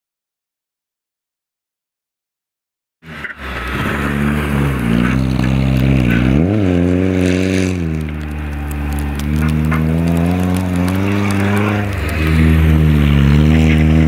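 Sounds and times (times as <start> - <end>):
rally car engine revving: 3.0 - 14.0.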